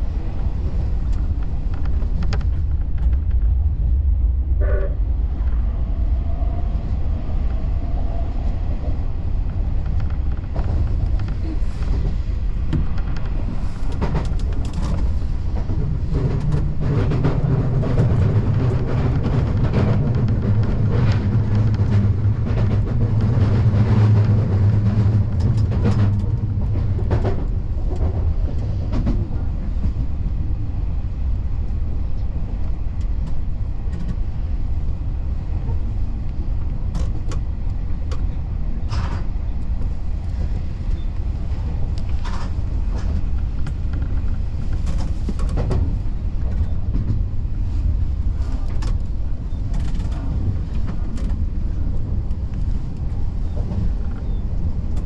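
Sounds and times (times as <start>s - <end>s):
electric train rumbling: 0.0s - 55.0s
low hum: 0.0s - 55.0s
wheels clicking on rails: 0.0s - 55.0s.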